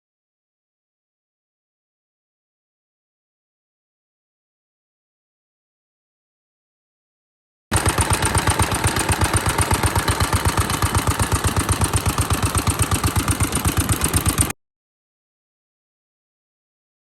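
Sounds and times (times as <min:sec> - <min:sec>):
stationary engine running: 0:07.7 - 0:14.6.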